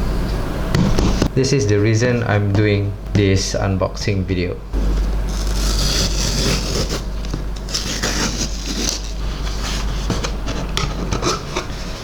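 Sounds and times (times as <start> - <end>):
package scraping and rustling: 4.8 - 12.0.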